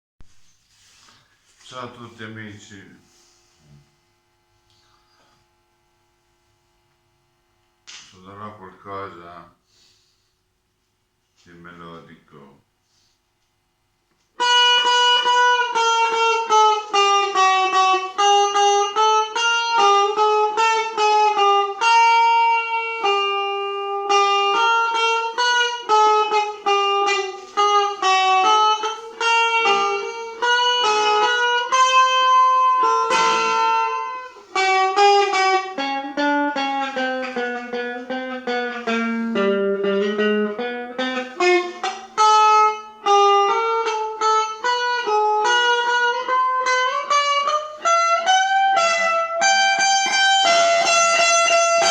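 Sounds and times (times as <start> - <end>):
guitar playing slow melody: 14.4 - 51.9.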